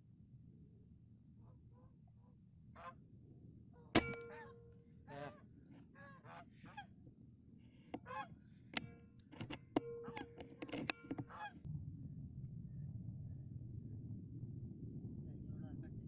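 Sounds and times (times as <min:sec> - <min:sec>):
geese honking: 0:04.1 - 0:05.4
low rumble: 0:11.7 - 0:16.0.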